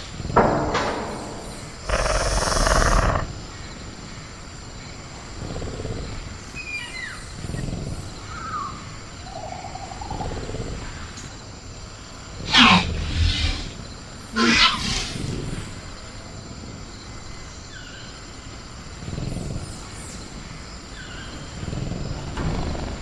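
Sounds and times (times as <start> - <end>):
high cricket tone: 0.0 - 23.0
creature growling low: 1.9 - 3.3
harsh noisy creature burst: 1.9 - 3.3, 12.4 - 13.8, 14.4 - 15.6
sharp loud sound: 12.5 - 13.8.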